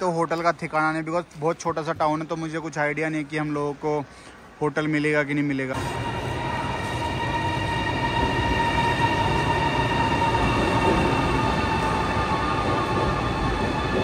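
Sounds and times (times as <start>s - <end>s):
high whine: 5.7s - 14.0s
train wheels rumbling on rails: 5.8s - 14.0s.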